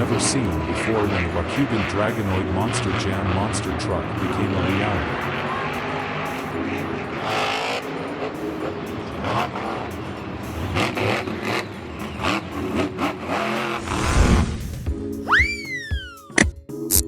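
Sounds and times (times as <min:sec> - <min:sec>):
monster truck engine revving: 0:00.0 - 0:14.9
falling whistle sound effect: 0:13.8 - 0:16.4.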